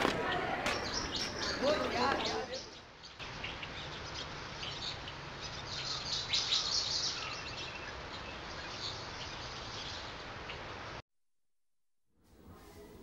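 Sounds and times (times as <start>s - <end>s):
birds chirping: 0.0s - 11.0s
steady background hiss: 12.3s - 13.0s.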